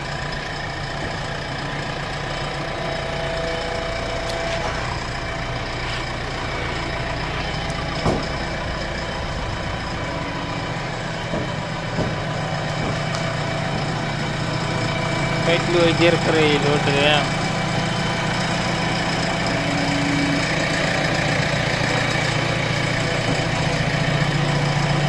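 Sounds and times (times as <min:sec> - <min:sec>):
diesel engine idling: 0:00.0 - 0:25.0
short sharp knocks: 0:11.2 - 0:14.3.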